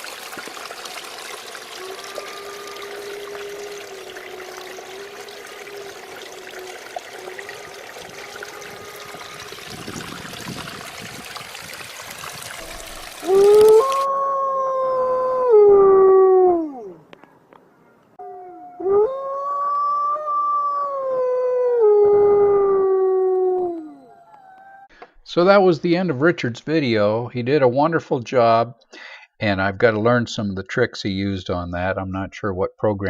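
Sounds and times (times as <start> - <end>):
water trickling: 0.0 - 14.1
dog howling: 1.7 - 10.3, 12.6 - 17.0, 18.2 - 24.9.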